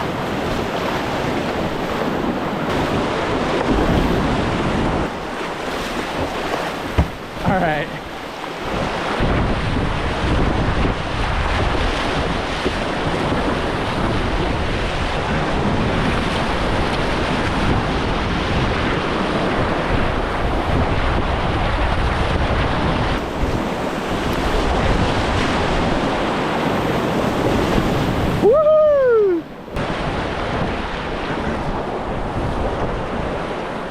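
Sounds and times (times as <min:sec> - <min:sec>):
wind buffeting microphone: 0:00.0 - 0:33.9
whitewater rushing: 0:02.5 - 0:09.2.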